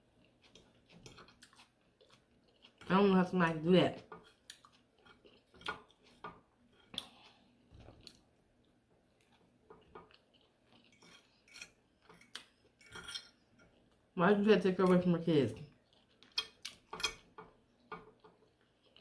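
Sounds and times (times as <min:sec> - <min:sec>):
cutlery clinking on a plate: 0:11.0 - 0:13.4, 0:16.3 - 0:17.4.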